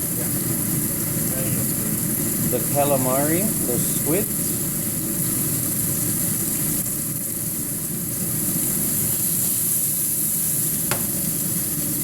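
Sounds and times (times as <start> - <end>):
seafood sizzling in hot oil: 0.0 - 12.0.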